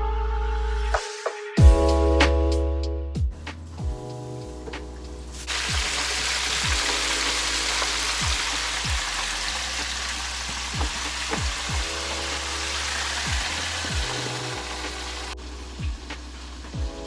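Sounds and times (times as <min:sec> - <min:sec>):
background music with deep bass: 0:00.0 - 0:17.0
food sizzling in hot oil: 0:03.4 - 0:17.0.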